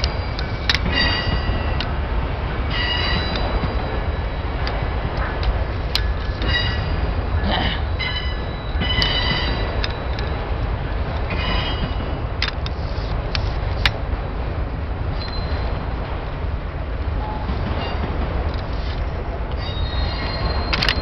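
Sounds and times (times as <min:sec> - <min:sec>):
train wheels rumbling on rail: 0:00.0 - 0:21.0
metal wheel squeals: 0:19.6 - 0:21.0.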